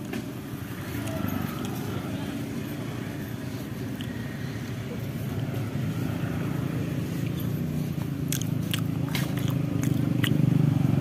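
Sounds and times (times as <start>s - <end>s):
road traffic rumble: 0.0s - 11.0s
chewing with wet mouth clicks: 3.9s - 5.4s, 7.2s - 10.4s.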